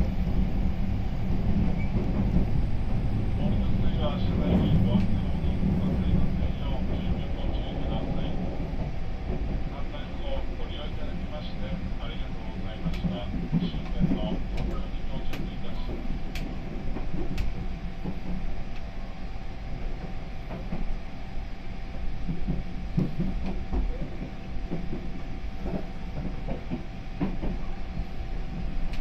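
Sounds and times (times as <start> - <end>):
wheels rumbling on rail: 0.0 - 29.0.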